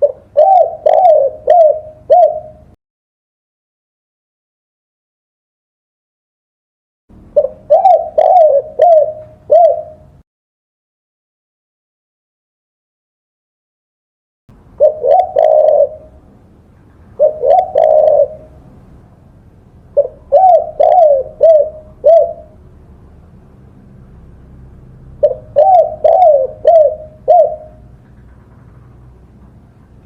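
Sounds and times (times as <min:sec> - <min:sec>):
dove cooing: 0:00.0 - 0:02.8, 0:07.3 - 0:10.2, 0:14.8 - 0:16.2, 0:17.1 - 0:18.6, 0:19.9 - 0:22.6, 0:25.2 - 0:28.3.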